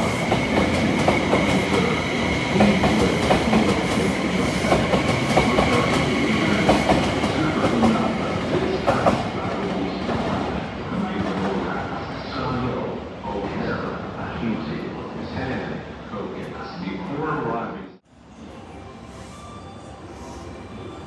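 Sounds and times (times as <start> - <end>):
high-pitched train whine: 0.0 - 8.9, 18.1 - 21.0.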